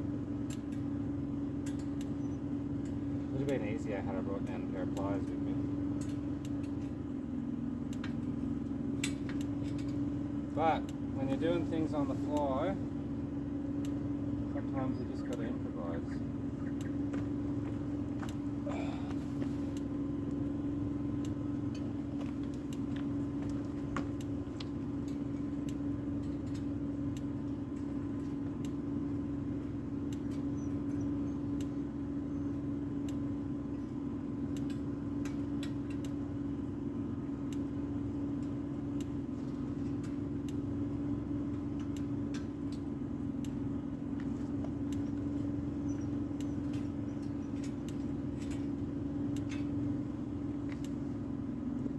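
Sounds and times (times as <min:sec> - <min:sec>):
motor humming steadily: 0:00.0 - 0:51.9
light clicks and taps: 0:16.6 - 0:18.4, 0:50.6 - 0:51.0.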